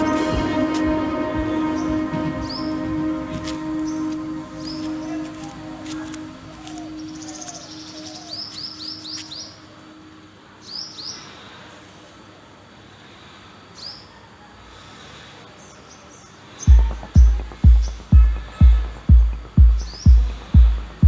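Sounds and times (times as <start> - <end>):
deep heavy music beats: 0.0 - 7.1, 16.7 - 21.0
songbird chirping: 0.0 - 11.6, 15.7 - 21.0
faint outdoor background: 0.0 - 21.0.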